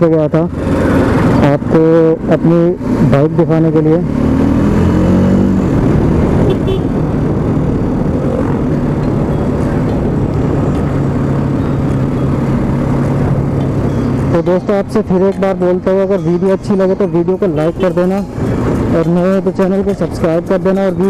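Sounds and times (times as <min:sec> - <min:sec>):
rushing wind: 0:00.0 - 0:03.2, 0:04.0 - 0:14.9, 0:17.7 - 0:20.0
motorcycle engine running: 0:00.0 - 0:21.0
road noise: 0:00.0 - 0:21.0.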